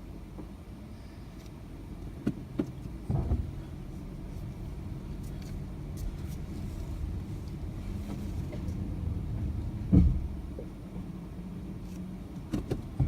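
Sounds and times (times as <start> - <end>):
car drive rumble: 0.0 - 13.0
low steady hum: 0.0 - 13.0
brake knocks: 9.8 - 10.4.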